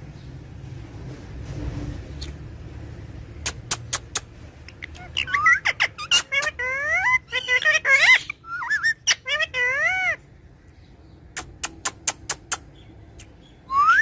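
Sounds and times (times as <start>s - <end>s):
parrot shrill whistled notes: 5.1s - 10.2s, 13.7s - 14.0s.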